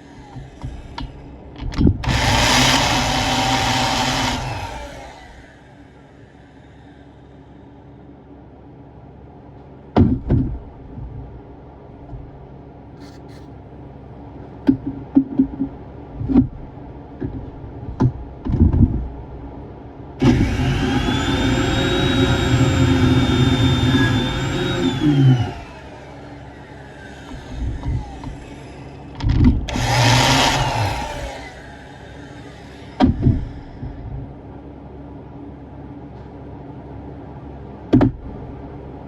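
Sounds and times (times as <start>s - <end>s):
power tool motor running: 2.0s - 7.0s, 20.2s - 33.8s.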